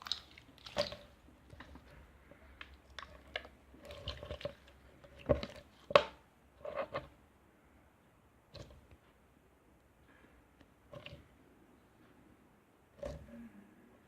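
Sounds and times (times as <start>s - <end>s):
slime squished by hand: 0.0s - 1.9s.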